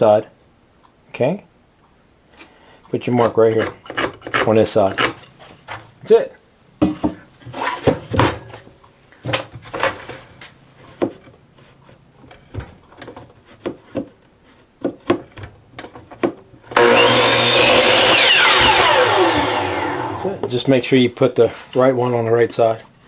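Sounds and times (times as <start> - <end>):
power tool running: 16.8 - 20.5.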